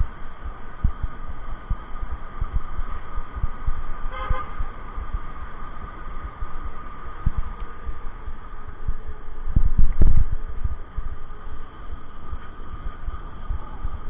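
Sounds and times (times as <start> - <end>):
wind buffeting microphone: 0.0 - 14.0
vehicle horn toot: 4.1 - 4.6.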